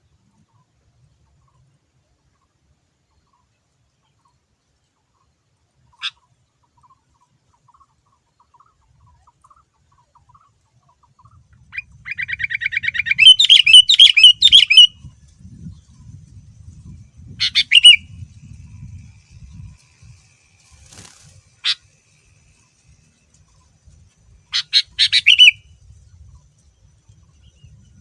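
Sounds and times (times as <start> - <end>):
bulbul calling and singing: 5.2 - 20.2, 20.9 - 28.0.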